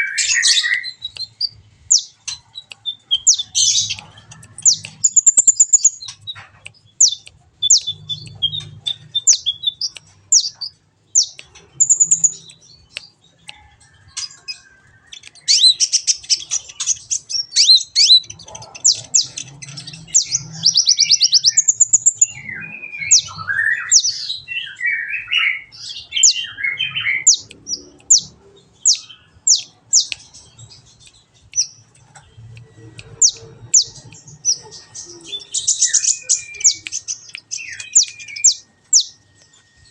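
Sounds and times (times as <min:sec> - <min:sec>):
bird chirping and trilling: 0:00.0 - 0:13.5, 0:14.1 - 0:39.9.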